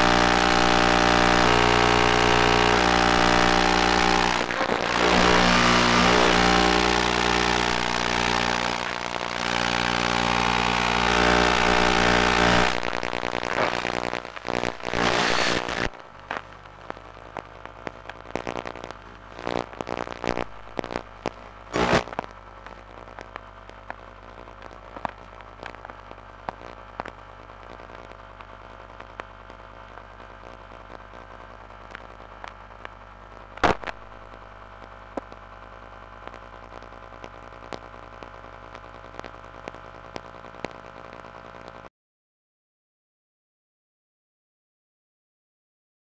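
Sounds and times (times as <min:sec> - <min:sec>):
loud burst of noise: 0:00.0 - 0:16.5, 0:18.4 - 0:22.2, 0:33.6 - 0:34.7
electrical hum: 0:00.0 - 0:41.8
crackling clicks: 0:00.0 - 0:41.9.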